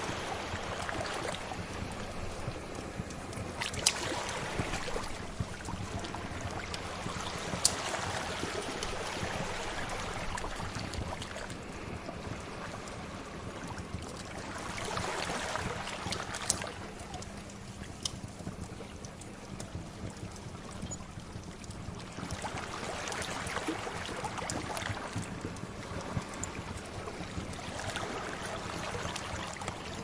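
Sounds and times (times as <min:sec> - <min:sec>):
sea waves washing ashore: 0:00.0 - 0:18.1, 0:22.0 - 0:30.0
wood fire crackling: 0:00.2 - 0:15.2.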